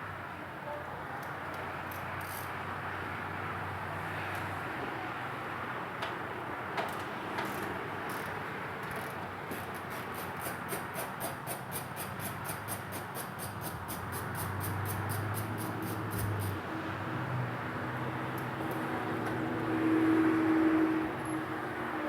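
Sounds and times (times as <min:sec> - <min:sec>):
ratchet wrench clicking: 0:01.9 - 0:02.5, 0:07.4 - 0:16.6.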